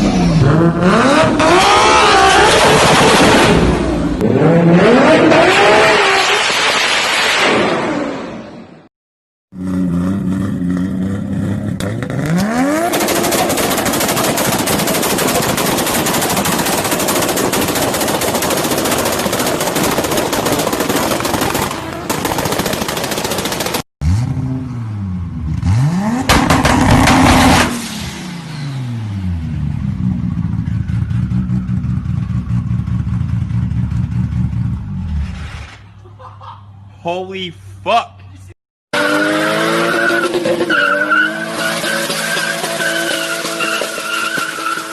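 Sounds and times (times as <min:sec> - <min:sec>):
car exhaust idling and revving: 0:28.4 - 0:35.1.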